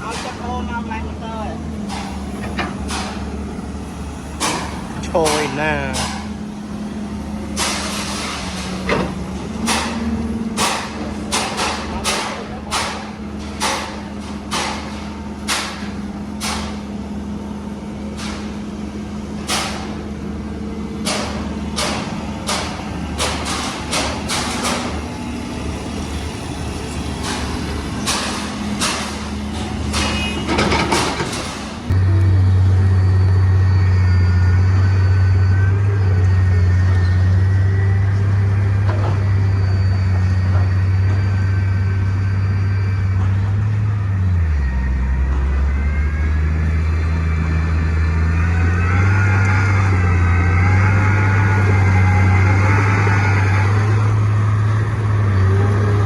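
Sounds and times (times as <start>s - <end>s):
low engine drone: 0.0s - 56.0s
machinery engine hum: 0.0s - 56.0s
metal clanks and knocks: 1.7s - 17.0s, 19.4s - 20.0s, 21.0s - 32.0s.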